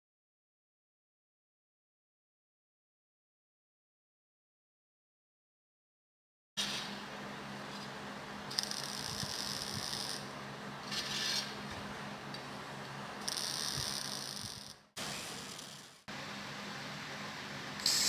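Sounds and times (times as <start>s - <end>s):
electric welding arc crackling: 8.5s - 10.3s, 13.2s - 16.0s, 17.8s - 18.0s.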